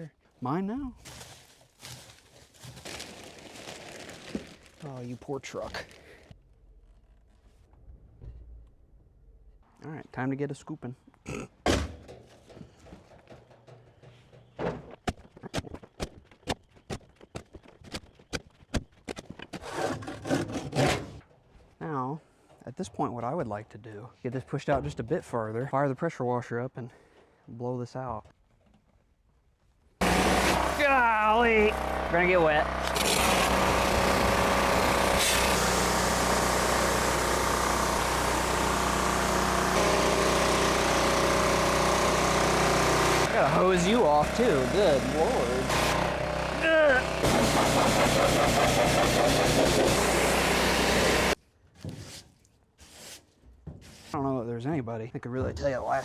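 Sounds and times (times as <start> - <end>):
small engine droning: 30.0 - 51.4.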